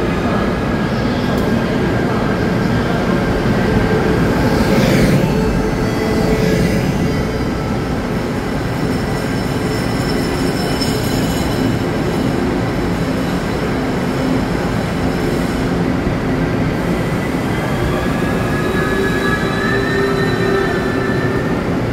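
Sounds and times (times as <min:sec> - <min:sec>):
train rumbling: 0:00.0 - 0:21.9
train brakes squealing: 0:04.0 - 0:13.6, 0:16.9 - 0:21.8.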